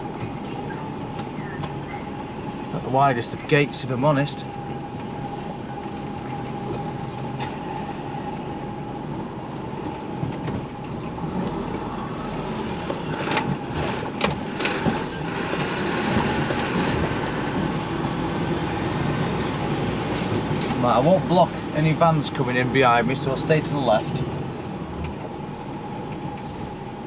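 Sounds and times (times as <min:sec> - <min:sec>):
steady whine: 0:00.0 - 0:17.8
truck engine and road rumble: 0:00.0 - 0:27.0.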